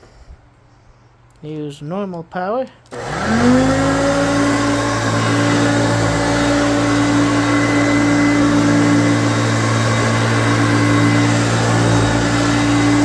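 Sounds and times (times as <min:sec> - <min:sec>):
vacuum cleaner motor humming: 0:02.9 - 0:13.0.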